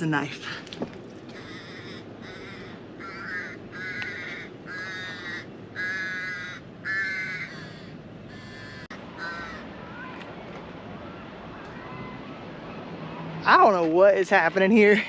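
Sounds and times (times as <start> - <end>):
seagull calling: 1.2 - 10.2.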